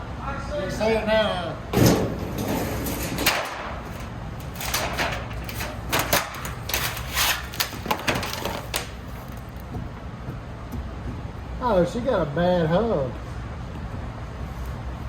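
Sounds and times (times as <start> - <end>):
tools clicking and clunking: 2.1 - 10.0.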